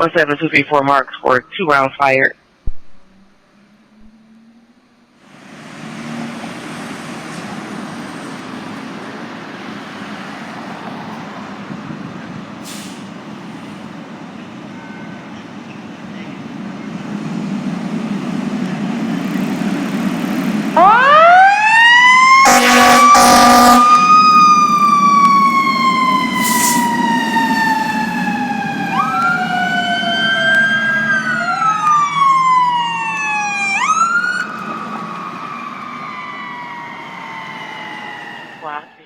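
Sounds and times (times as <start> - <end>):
truck engine rumbling: 2.6 - 39.0
second siren tone: 3.0 - 5.1, 20.8 - 39.0
fire engine siren: 3.3 - 39.0
air horn blasts: 22.4 - 24.3.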